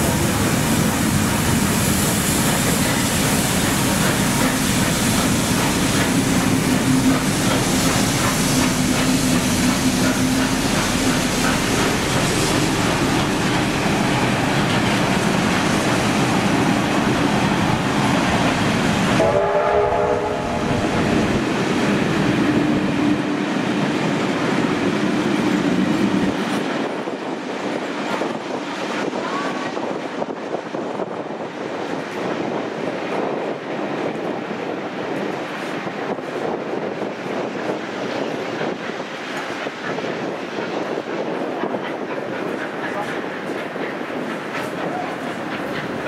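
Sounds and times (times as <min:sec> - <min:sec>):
train wheel and rail noise: 0:00.0 - 0:46.0
train horn blast: 0:19.2 - 0:21.0.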